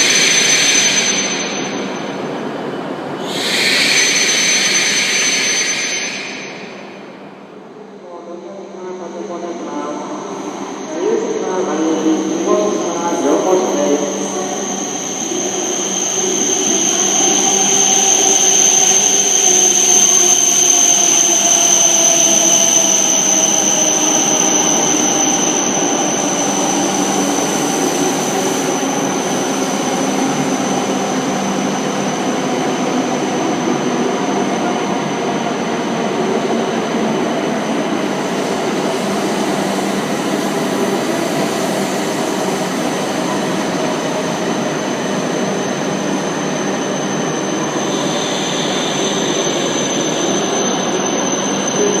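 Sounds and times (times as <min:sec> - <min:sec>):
train high whine: 0:00.0 - 0:52.0.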